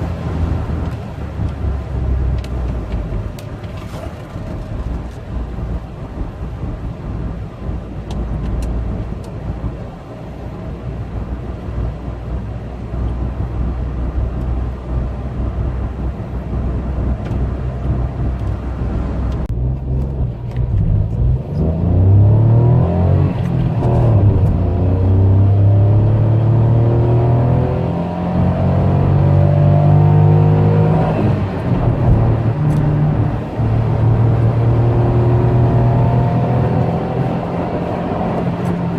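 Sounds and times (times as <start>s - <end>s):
car engine running: 0.0s - 26.6s
road and tyre noise: 0.0s - 38.9s.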